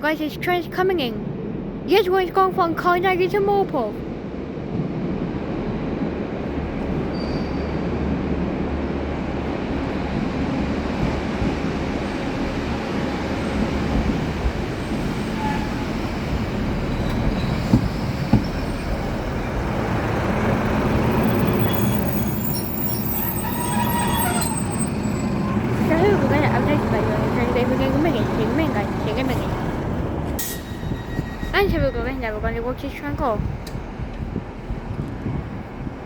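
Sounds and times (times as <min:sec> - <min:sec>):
train wheels rumbling: 0:00.2 - 0:36.0
train wheels squealing: 0:07.1 - 0:08.0, 0:14.8 - 0:19.4, 0:21.1 - 0:26.8, 0:30.4 - 0:32.4.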